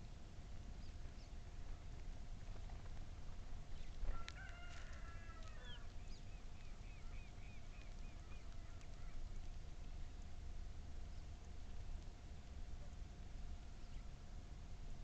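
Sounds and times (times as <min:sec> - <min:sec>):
faint steady hum: 0:00.0 - 0:15.0
rooster crowing: 0:04.1 - 0:05.9
bird chirping: 0:05.6 - 0:09.2, 0:13.8 - 0:14.1.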